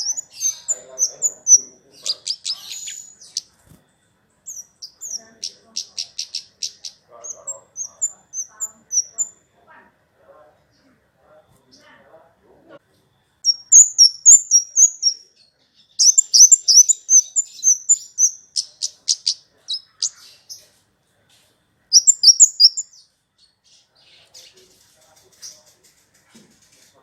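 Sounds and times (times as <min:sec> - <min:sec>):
songbird high-pitched chirps: 0:00.0 - 0:03.7, 0:04.4 - 0:09.4, 0:13.4 - 0:20.8, 0:21.9 - 0:25.8.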